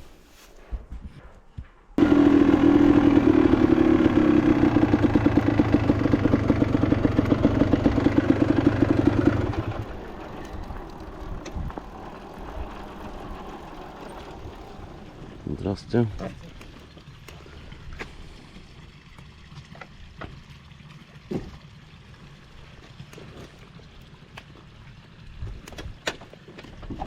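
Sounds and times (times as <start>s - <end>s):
motorcycle engine running: 2.0s - 20.4s.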